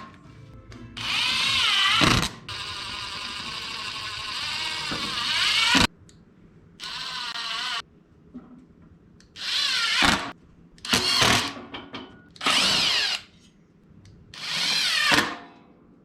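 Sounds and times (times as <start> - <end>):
power drill bursts: 6.8 - 7.8, 12.4 - 13.2.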